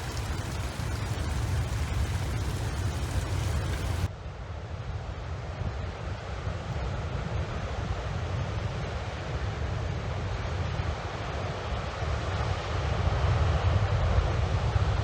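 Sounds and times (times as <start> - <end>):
rough storm-driven water rushing: 0.0 - 4.1
wind buffeting the microphone: 0.0 - 4.1.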